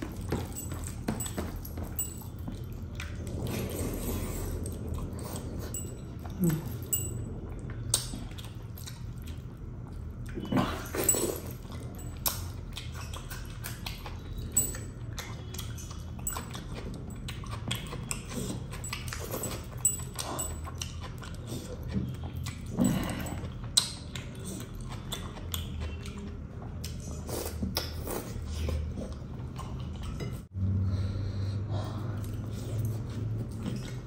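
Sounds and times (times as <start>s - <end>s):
man chewing: 0.0s - 34.0s.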